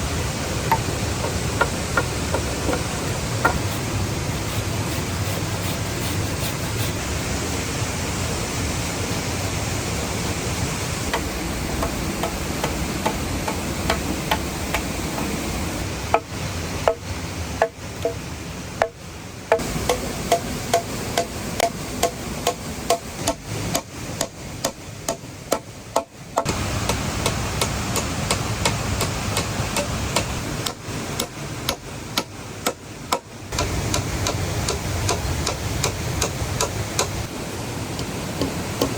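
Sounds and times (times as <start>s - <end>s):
falling water rushing: 0.0s - 38.9s
tool knocking on wood: 0.7s - 3.9s, 16.1s - 17.0s.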